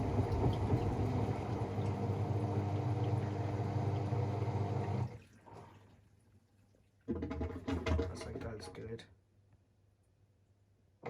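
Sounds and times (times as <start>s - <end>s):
washing machine spinning: 0.0s - 5.1s.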